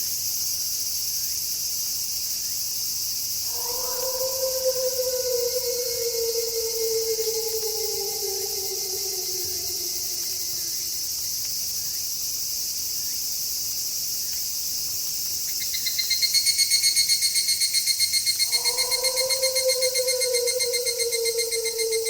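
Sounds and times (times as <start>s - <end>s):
crickets chirping: 3.2s - 14.4s, 15.3s - 22.0s
rapidly pulsing high chirp: 3.5s - 10.8s, 18.2s - 22.0s
wolf howling: 3.5s - 11.2s, 18.3s - 22.0s.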